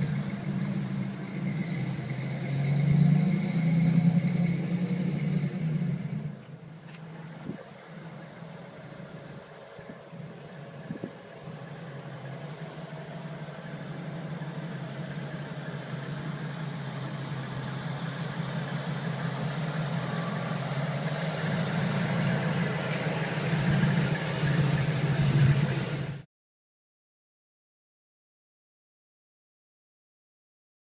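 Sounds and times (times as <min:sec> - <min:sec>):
truck engine idling: 0:00.0 - 0:26.2.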